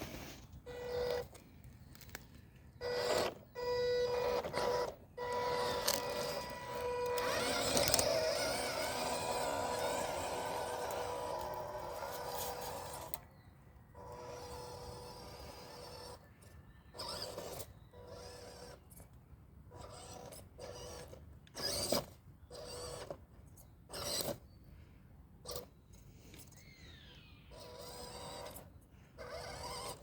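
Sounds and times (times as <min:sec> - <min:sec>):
electric motor whining: 0:02.8 - 0:13.3, 0:13.9 - 0:16.2, 0:16.9 - 0:18.9, 0:26.6 - 0:30.0.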